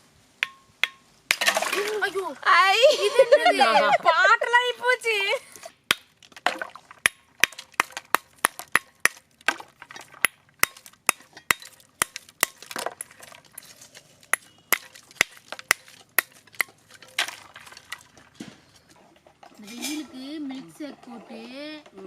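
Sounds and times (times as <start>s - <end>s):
ice being broken with hard knocks: 5.9s - 13.7s.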